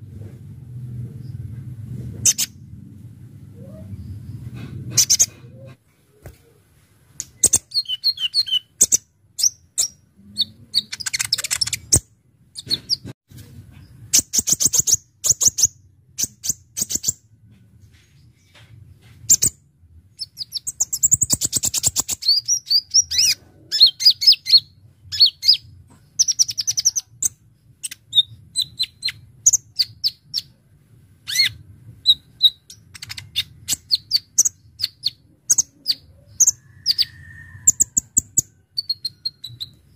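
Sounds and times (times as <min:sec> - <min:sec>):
faint low hum: 0:00.0 - 0:08.5, 0:09.7 - 0:39.9.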